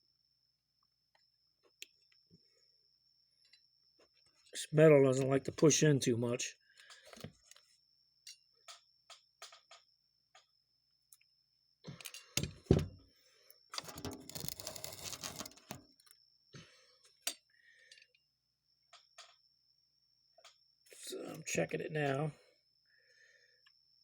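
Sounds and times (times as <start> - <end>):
small metal parts clicking: 13.7 - 15.8.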